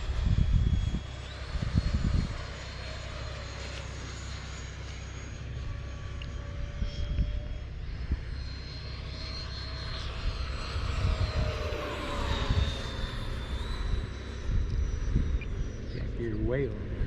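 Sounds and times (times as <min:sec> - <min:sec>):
wind buffeting microphone: 0:00.0 - 0:02.6, 0:10.0 - 0:17.0
model jets high whine: 0:00.0 - 0:17.0.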